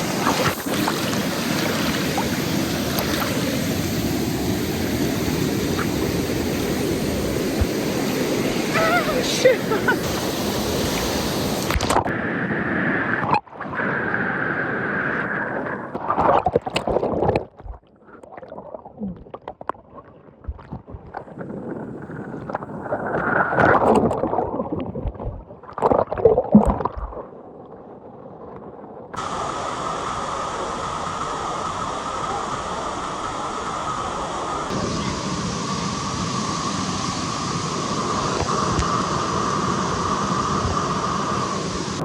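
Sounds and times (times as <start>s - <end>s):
creek water rushing: 0.0s - 12.4s, 29.2s - 42.0s.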